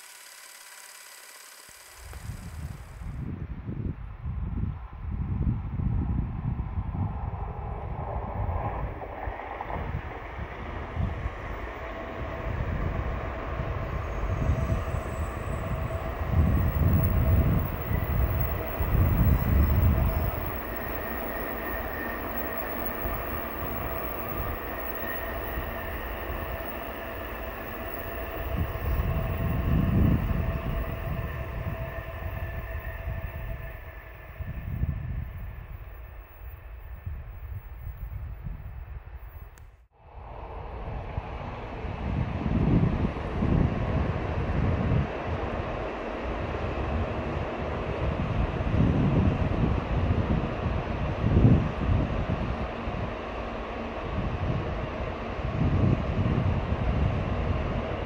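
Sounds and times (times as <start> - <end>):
faint steady hum: 0.0 - 58.0
low rumble of train: 1.8 - 58.0
wind buffeting microphone: 2.2 - 36.1.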